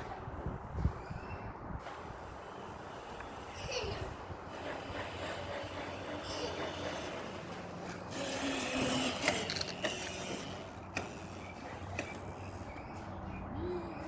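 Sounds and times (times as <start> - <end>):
bicycle clicking and rattling: 4.5 - 13.3.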